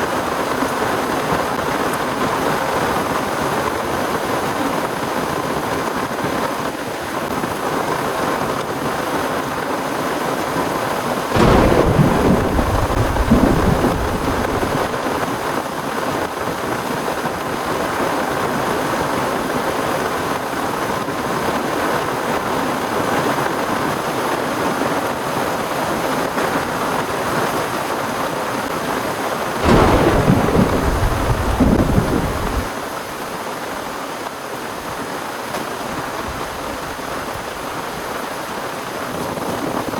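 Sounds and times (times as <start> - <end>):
heavy rain falling: 0.0 - 39.9
thunder rumbling: 11.4 - 15.3, 29.6 - 32.7.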